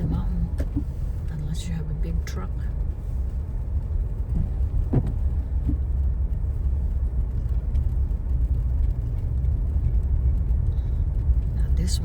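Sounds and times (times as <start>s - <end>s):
car cabin road rumble: 0.0s - 12.0s
thump: 4.9s - 5.2s.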